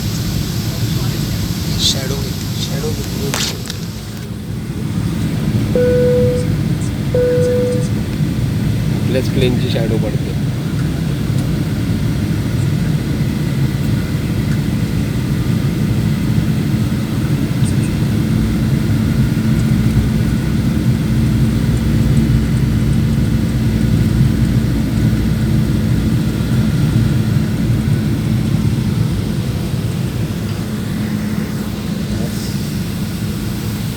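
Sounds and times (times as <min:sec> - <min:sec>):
aeroplane cabin engine roar: 0:00.0 - 0:33.9.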